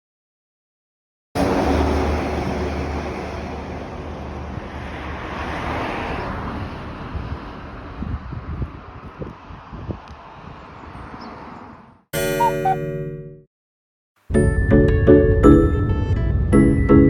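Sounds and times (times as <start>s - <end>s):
car engine and road rumble: 1.4s - 12.0s.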